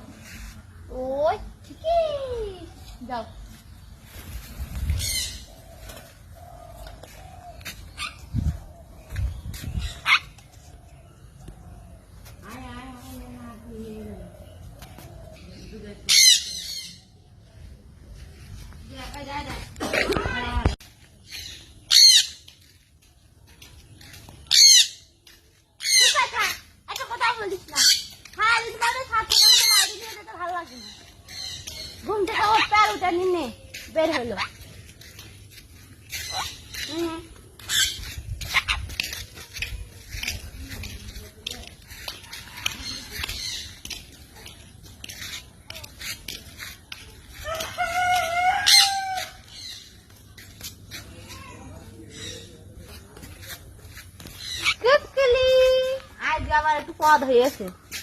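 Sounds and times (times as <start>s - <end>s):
pet bird calling: 36.1s - 39.3s
rooster crowing: 47.4s - 49.4s.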